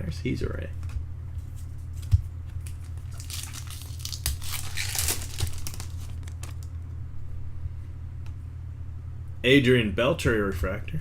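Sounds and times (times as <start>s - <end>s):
steady low hum: 0.0s - 11.0s
foil wrapper crinkling and tearing: 2.6s - 6.8s.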